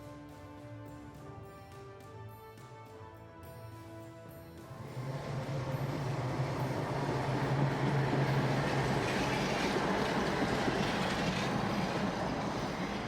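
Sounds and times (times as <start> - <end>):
heavy vehicle engine drone: 4.7 - 13.0.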